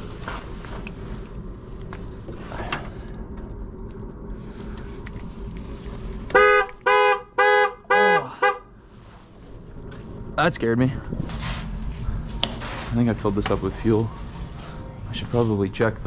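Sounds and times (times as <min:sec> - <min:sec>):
vehicle engine humming: 0:00.0 - 0:16.0
vehicle horn honks: 0:06.3 - 0:08.7.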